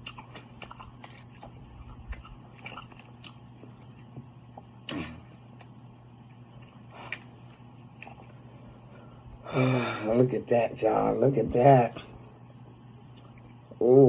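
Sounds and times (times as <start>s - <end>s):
chewing seafood: 0.0s - 9.5s, 12.4s - 13.8s
steady low hum: 0.0s - 14.0s.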